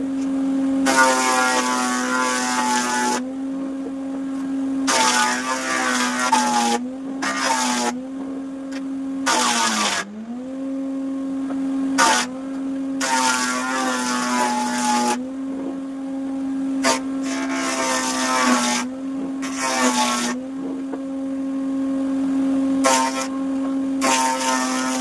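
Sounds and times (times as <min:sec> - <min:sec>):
woodworking machine whining: 0:00.0 - 0:25.0
saw rasping through wood: 0:00.8 - 0:03.4, 0:04.8 - 0:08.1, 0:08.7 - 0:10.6, 0:12.0 - 0:15.3, 0:16.8 - 0:20.8, 0:22.8 - 0:23.4, 0:24.0 - 0:25.0.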